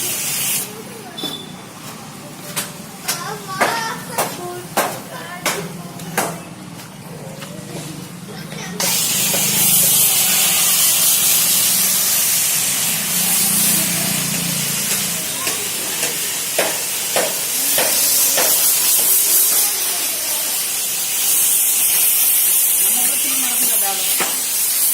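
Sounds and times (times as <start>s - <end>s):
foam sprayer hissing: 0.0s - 2.4s, 7.7s - 24.9s.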